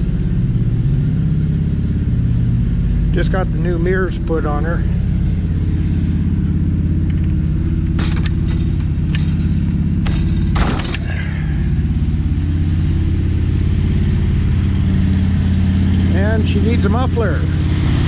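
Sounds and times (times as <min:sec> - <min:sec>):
truck engine running: 0:00.0 - 0:18.0
loud clatter: 0:07.0 - 0:11.2.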